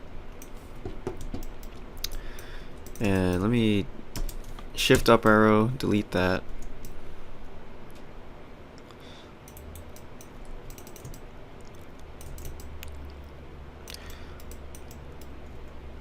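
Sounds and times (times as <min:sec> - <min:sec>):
low steady hum: 0:00.0 - 0:16.0
keyboard and mouse clicking: 0:00.3 - 0:03.5, 0:04.2 - 0:04.7, 0:09.4 - 0:13.2, 0:13.9 - 0:15.6.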